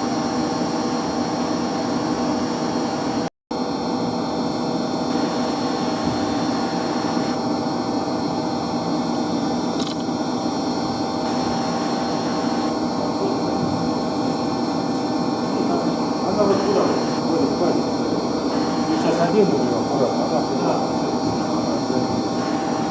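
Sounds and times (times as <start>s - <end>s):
pumps and motors humming: 4.7s - 22.9s.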